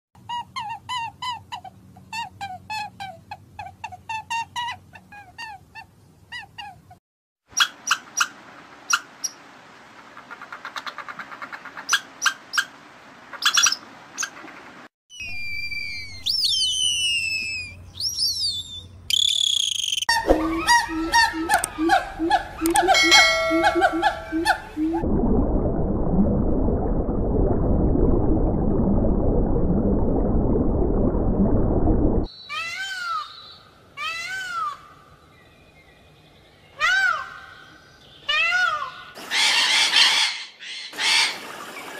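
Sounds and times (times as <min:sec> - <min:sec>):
squirrel chirping: 0:16.2 - 0:24.7
faint low blips: 0:19.5 - 0:32.3
underwater rumble and crackle: 0:25.0 - 0:32.3.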